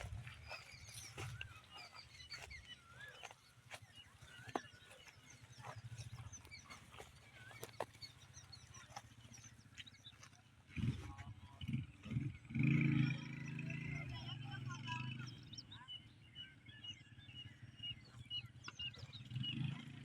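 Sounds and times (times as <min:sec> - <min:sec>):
goats chewing feed: 0:00.0 - 0:11.3.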